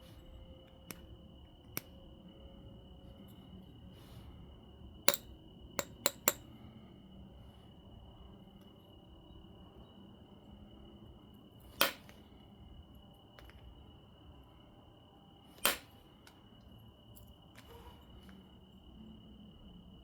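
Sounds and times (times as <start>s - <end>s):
stone knapping ticks: 5.1s - 6.4s.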